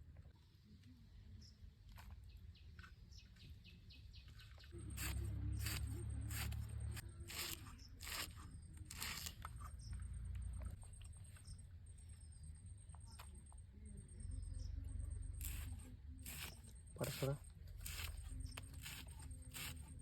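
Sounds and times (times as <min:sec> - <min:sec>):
broad scraping strokes: 0:04.8 - 0:09.5, 0:15.4 - 0:20.0
faint bird chirps: 0:09.7 - 0:18.7.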